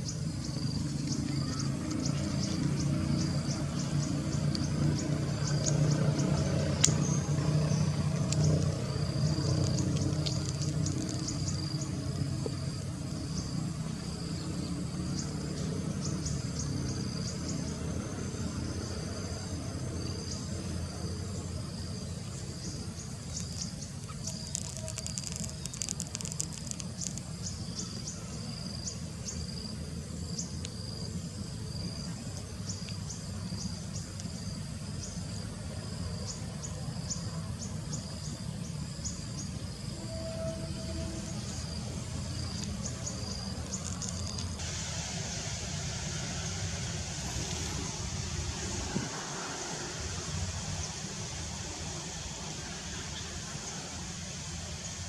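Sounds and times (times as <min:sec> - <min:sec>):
insect buzzing trill: 0:00.0 - 0:14.4, 0:22.6 - 0:29.4, 0:39.4 - 0:44.6
crickets chirping: 0:00.0 - 0:55.0
low steady rumble: 0:00.0 - 0:55.0.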